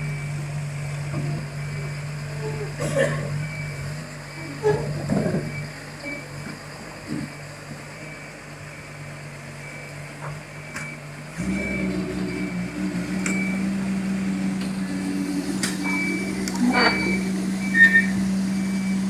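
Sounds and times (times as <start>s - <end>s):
diesel engine running: 0.0s - 19.0s
short high beep: 15.9s - 18.2s.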